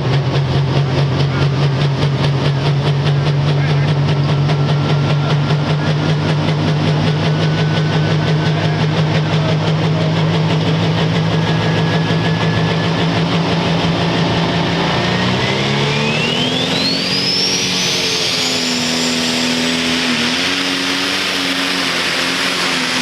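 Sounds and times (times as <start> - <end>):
tractor engine idling loudly: 0.0 - 23.0
faint high whine: 7.4 - 23.0.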